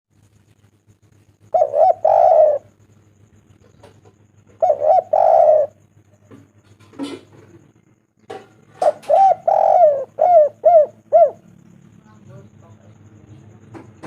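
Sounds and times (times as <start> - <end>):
dove cooing: 1.3 - 7.7, 8.3 - 11.9.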